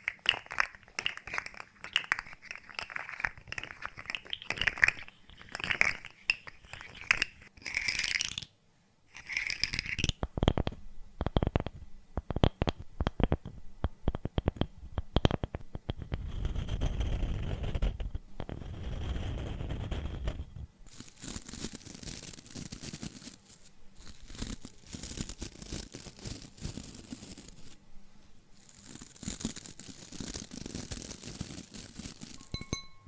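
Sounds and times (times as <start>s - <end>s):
tapping and clicking: 10.0s - 16.3s
objects crackling: 28.5s - 32.9s.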